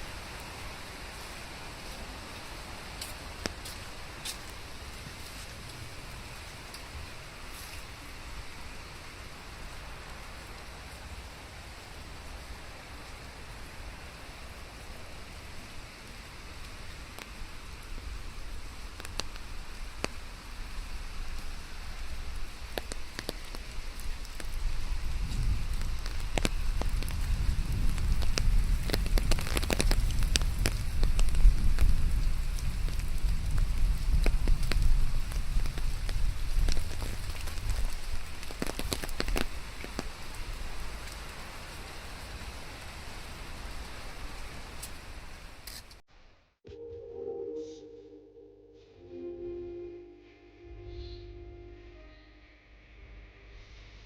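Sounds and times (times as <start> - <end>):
rain hissing: 0.0 - 46.0
low rumble: 47.8 - 54.0.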